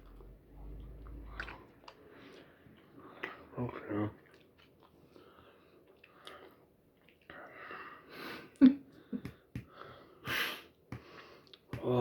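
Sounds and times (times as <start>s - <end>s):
person breathing hard: 7.4s - 11.7s.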